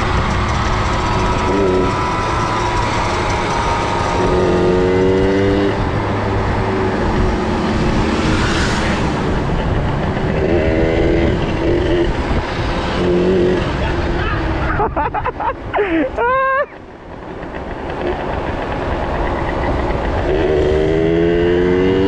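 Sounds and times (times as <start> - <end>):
two-stroke minibike engines revving: 0.0 - 14.6, 17.5 - 22.0
rushing noise: 0.0 - 14.9
steady low rumble: 5.7 - 15.7.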